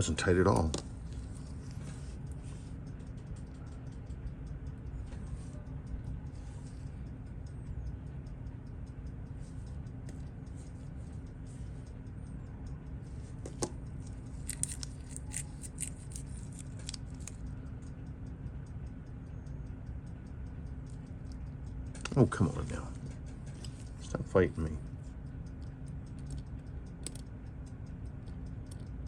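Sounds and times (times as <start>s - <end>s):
faint regular ticking: 0.0s - 29.0s
low hum: 0.0s - 29.0s
small tool clicks on watch parts: 0.1s - 18.0s, 25.4s - 29.0s.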